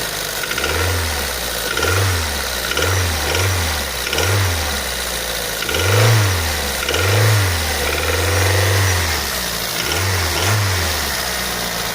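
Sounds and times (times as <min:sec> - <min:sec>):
car engine revving with knock: 0:00.0 - 0:11.9.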